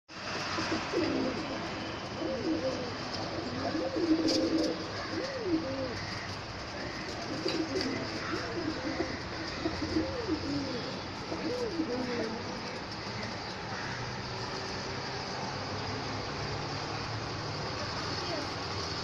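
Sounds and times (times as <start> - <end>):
pigeons and doves cooing: 0.3 - 14.0.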